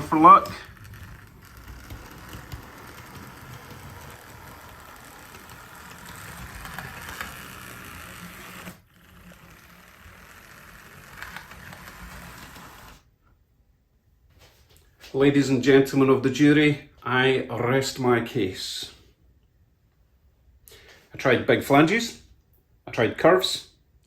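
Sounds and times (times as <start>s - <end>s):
model train motor whirring: 0.0s - 13.0s.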